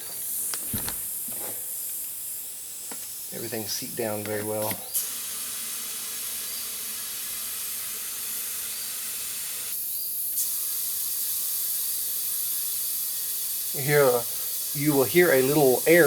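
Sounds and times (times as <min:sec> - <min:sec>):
air hissing into tire: 0:04.8 - 0:16.0.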